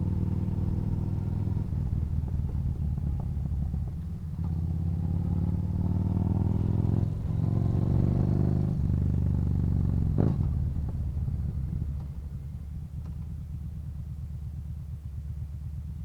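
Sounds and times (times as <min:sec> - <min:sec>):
motorcycle engine accelerating: 0:00.0 - 0:13.6.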